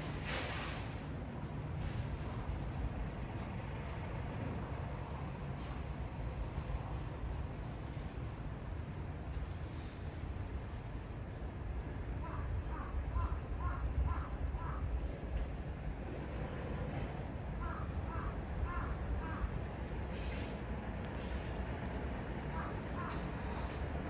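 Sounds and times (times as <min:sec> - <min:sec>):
crow cawing: 0:12.2 - 0:14.8, 0:17.6 - 0:19.5, 0:22.5 - 0:23.2.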